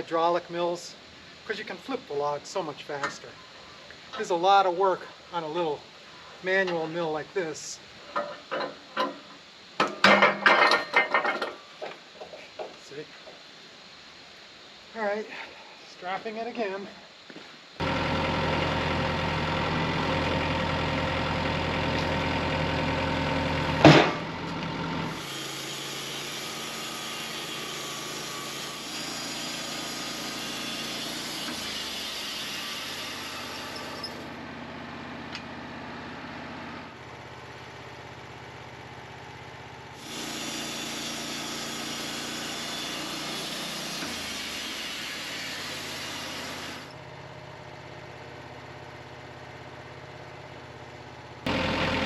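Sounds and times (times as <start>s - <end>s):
engine idling: 17.8s - 26.6s, 33.1s - 40.0s, 46.8s - 52.0s.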